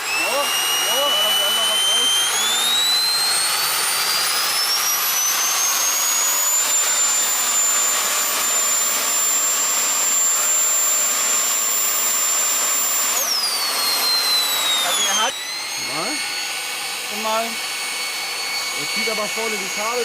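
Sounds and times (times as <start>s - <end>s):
small motor whine: 0.0s - 20.0s.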